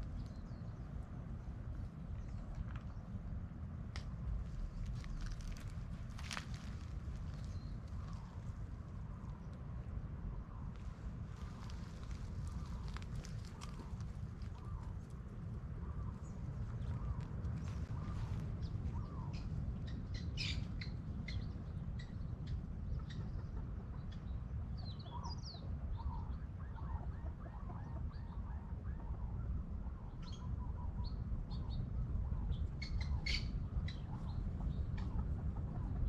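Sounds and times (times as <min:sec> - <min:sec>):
steady low rumble: 0:00.0 - 0:36.0
birds chirping and calling: 0:15.8 - 0:29.4, 0:30.0 - 0:36.0.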